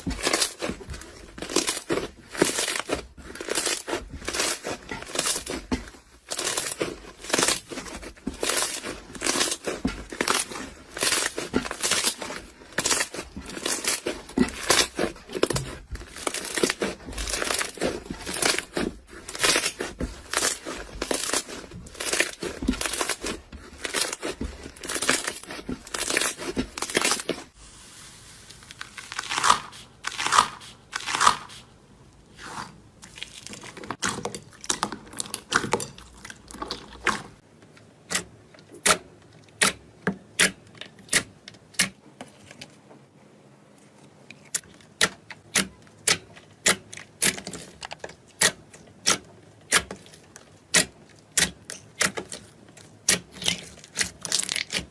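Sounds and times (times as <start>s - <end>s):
crunchy material crackling: 0.0s - 31.6s.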